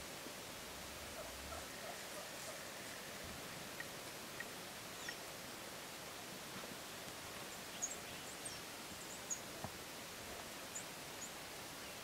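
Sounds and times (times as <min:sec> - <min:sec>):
steady outdoor hiss: 0:00.0 - 0:12.0
small birds chirping: 0:03.7 - 0:05.3, 0:07.4 - 0:09.6.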